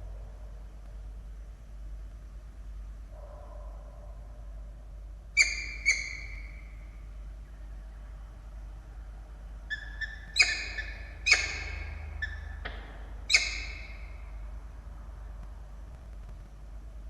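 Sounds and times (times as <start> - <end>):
falcons calling: 5.4 - 6.7, 9.7 - 14.3.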